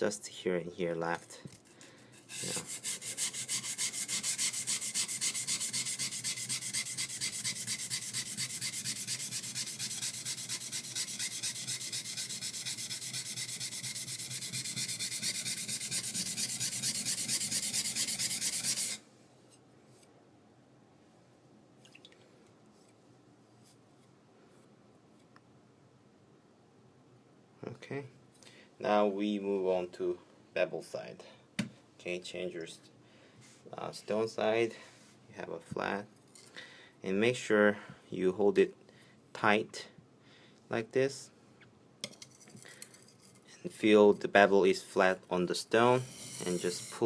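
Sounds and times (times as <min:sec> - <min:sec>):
knife blade grinding on whetstone: 0:02.3 - 0:19.0, 0:45.9 - 0:47.0.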